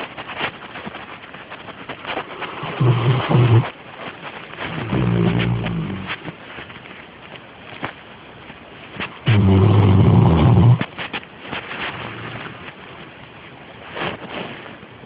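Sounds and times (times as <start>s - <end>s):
dog snoring: 2.4s - 3.7s, 4.7s - 6.2s, 9.3s - 10.8s.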